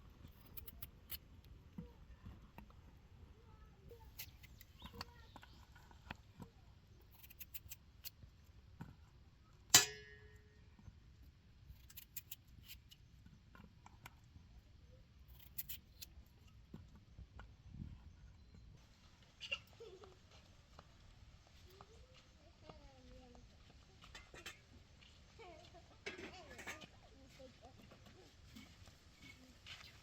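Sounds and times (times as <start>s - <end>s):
loud metallic clang: 9.8s - 10.3s.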